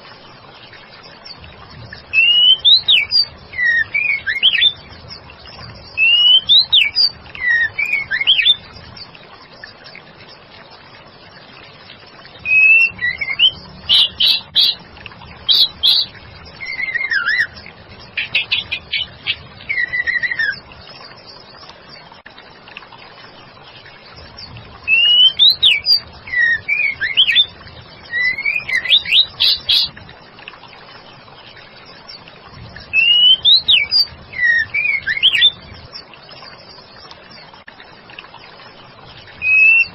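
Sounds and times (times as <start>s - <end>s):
bird whistling and trilling: 2.1s - 4.8s, 6.0s - 8.6s, 12.4s - 14.8s, 15.4s - 17.6s, 18.2s - 20.6s, 24.9s - 27.5s, 28.1s - 29.9s, 32.9s - 35.6s, 39.4s - 39.9s.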